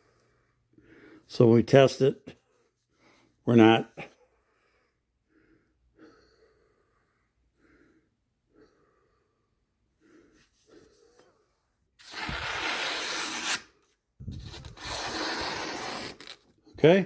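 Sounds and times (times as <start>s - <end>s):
knife rasping and sliding: 12.0s - 16.4s.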